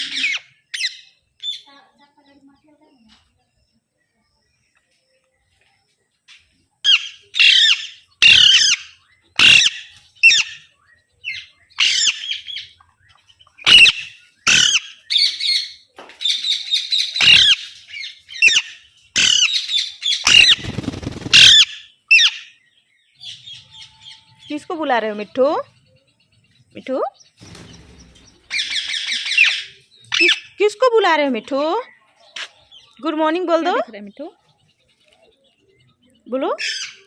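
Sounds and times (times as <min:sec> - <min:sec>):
parrot squawking: 0:00.0 - 0:01.6, 0:06.9 - 0:10.6, 0:13.6 - 0:15.6, 0:16.9 - 0:17.8, 0:18.4 - 0:20.6, 0:21.3 - 0:22.5
noisy rustling: 0:20.4 - 0:21.6, 0:27.3 - 0:28.8.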